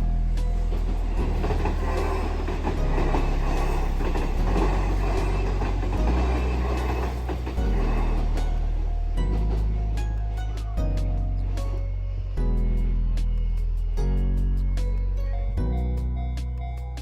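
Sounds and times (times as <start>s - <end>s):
electric train running past: 0.0s - 10.6s
wheels clicking on rails: 0.0s - 12.3s.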